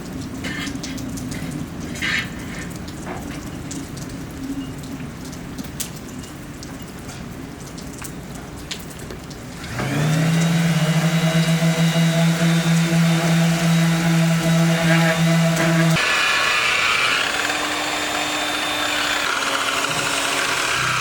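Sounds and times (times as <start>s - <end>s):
electric power tool motor: 9.6s - 21.0s.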